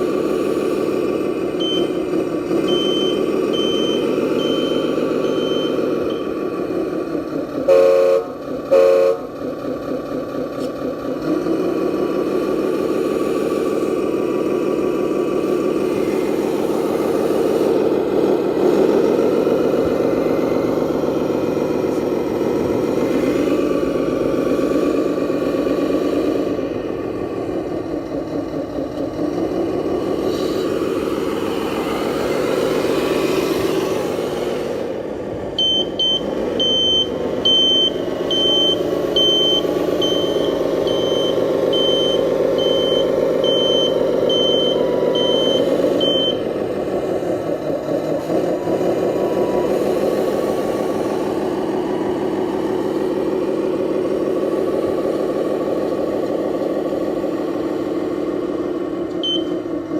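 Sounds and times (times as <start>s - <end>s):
reversing beeper: 1.6s - 2.0s, 2.6s - 6.5s, 35.6s - 46.5s, 59.2s - 59.6s.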